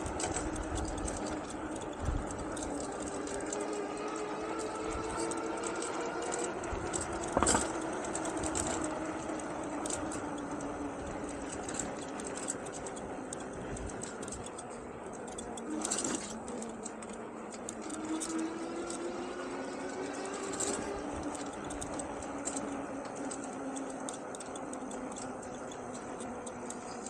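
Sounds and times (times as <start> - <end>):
electric motor whining: 0.0 - 27.0.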